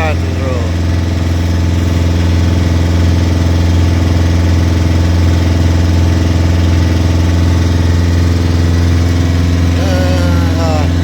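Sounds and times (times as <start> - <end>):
motor boat engine humming: 0.0 - 11.0.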